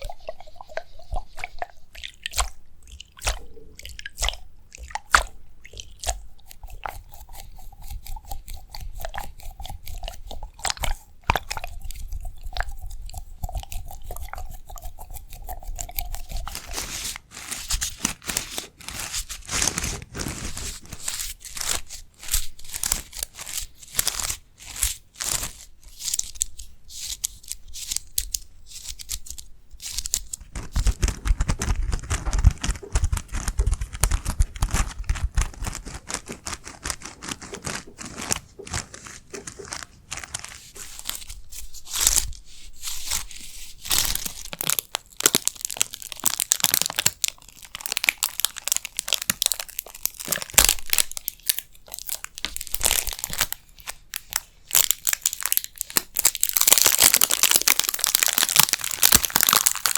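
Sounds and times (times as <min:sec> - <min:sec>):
crackling and crunching at microphone: 0:00.0 - 0:59.9.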